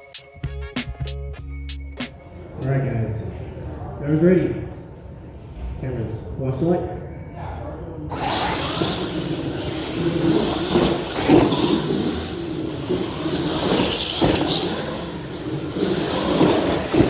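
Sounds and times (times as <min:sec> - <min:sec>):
toy truck motors whirring: 0:08.1 - 0:17.0.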